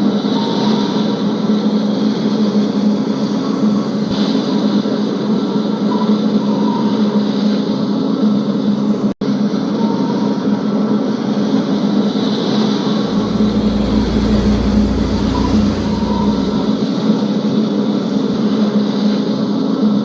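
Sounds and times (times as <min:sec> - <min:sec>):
boat engine drone: 0:11.4 - 0:17.3.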